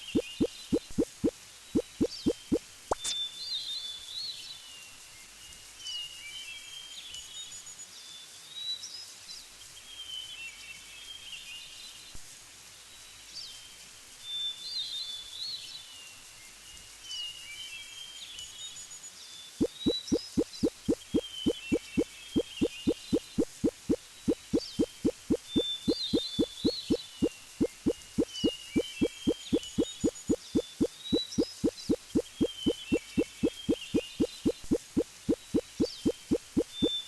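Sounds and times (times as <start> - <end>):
bird chirping: 0.0 - 3.2, 19.6 - 37.0
steady outdoor hiss: 0.0 - 37.0
quick rising plops: 19.6 - 36.9.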